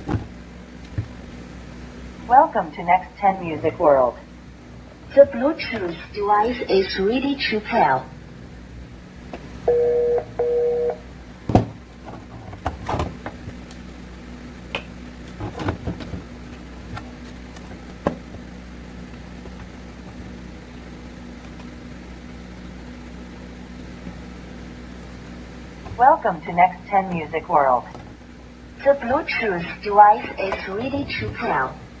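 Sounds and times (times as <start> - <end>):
low hum: 13.3 - 32.0.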